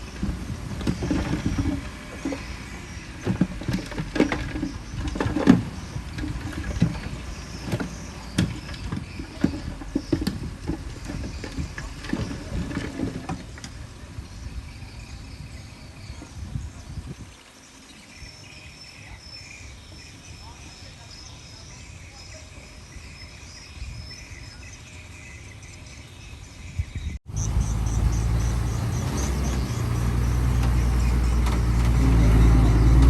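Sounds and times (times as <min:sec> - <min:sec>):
diesel engine rumbling: 0:00.0 - 0:16.7, 0:23.7 - 0:33.0
machinery clanks and knocks: 0:27.4 - 0:33.0.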